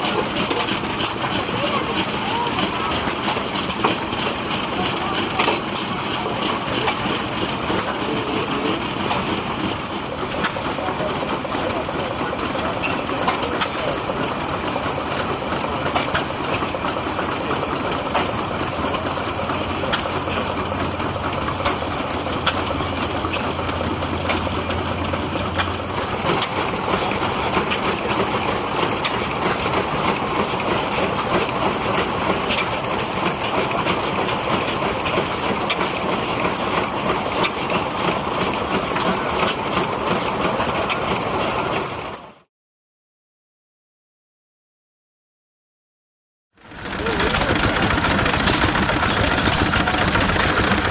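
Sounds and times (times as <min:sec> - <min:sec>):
engine running: 0:00.0 - 0:42.3, 0:46.6 - 0:50.9
dense clatter of clicks: 0:46.7 - 0:50.9.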